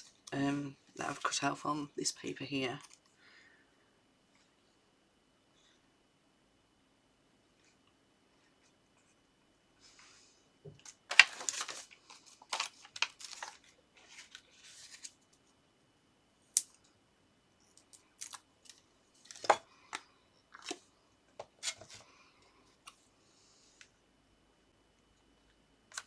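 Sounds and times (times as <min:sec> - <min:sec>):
paper rustling and scraping: 0:11.1 - 0:15.2.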